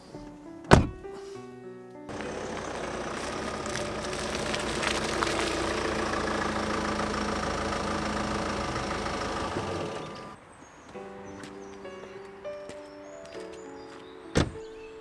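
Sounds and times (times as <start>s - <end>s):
engine running: 2.1s - 10.4s.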